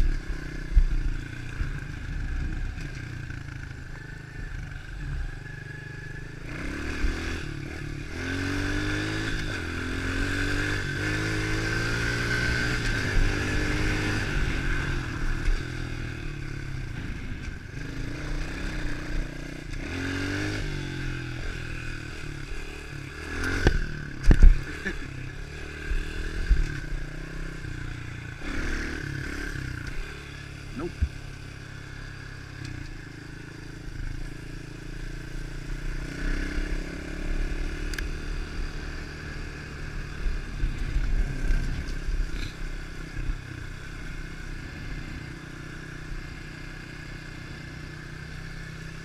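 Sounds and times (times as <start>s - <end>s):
motorbike engine revving: 0.0s - 49.0s.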